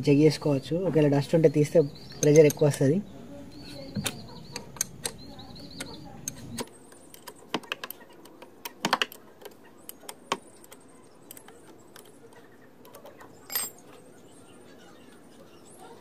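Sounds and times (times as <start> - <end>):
metal tools clinking: 13.4 - 14.0.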